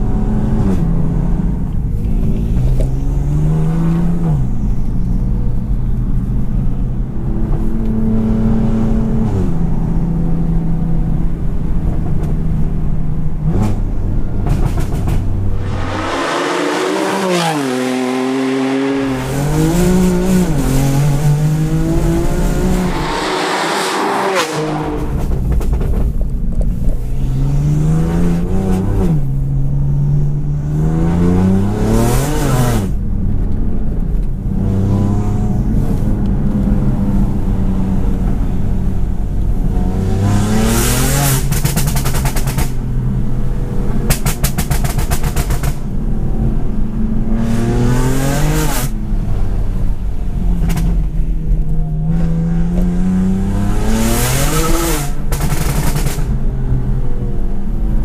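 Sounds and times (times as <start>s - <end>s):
car engine accelerating hard: 13.3s - 26.2s, 27.0s - 58.0s.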